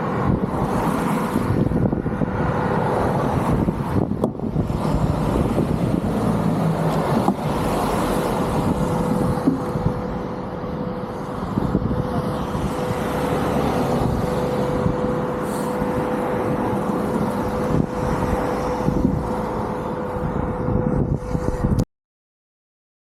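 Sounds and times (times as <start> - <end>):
car engine and tyre rumble: 0.0 - 21.8
constant hum: 0.0 - 21.8.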